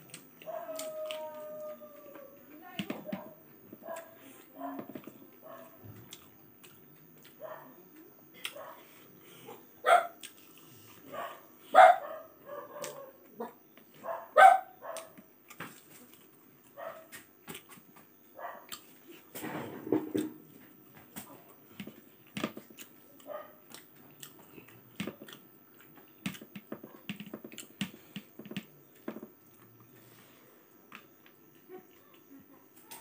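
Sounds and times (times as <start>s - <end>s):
chewing and lip smacks: 22.6s - 28.6s.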